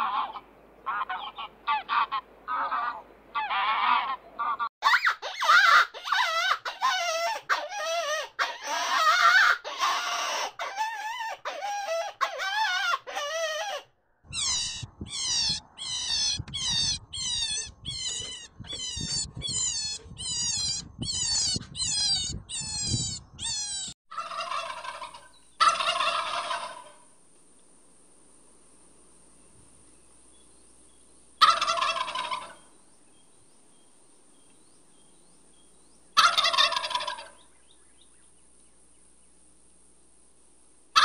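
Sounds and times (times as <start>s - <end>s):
fowl calling: 0.0s - 27.0s, 31.4s - 32.7s, 36.2s - 37.4s.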